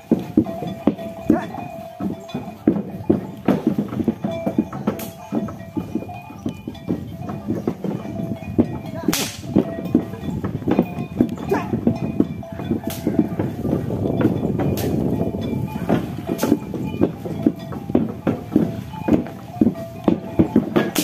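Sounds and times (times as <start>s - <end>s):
hooves and cart wheels knocking: 0.0s - 21.0s
sharp cracks: 9.1s - 9.5s.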